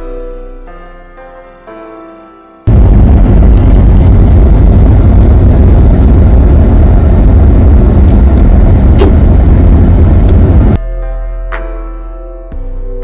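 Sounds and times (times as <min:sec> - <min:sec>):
vehicle road and wind rumble: 0:02.7 - 0:10.8.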